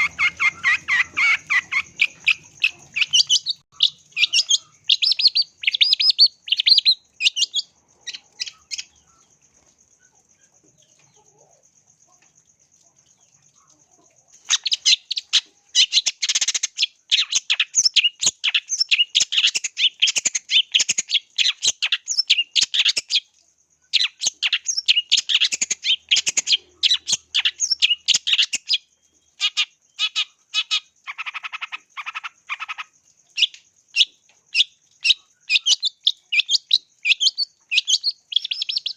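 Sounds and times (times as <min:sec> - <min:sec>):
shrike singing: 0:00.0 - 0:09.4.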